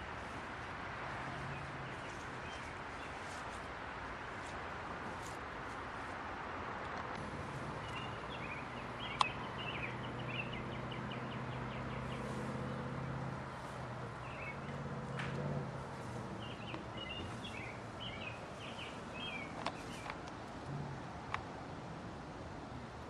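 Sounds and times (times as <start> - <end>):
low engine-like hum: 7.2 - 23.0.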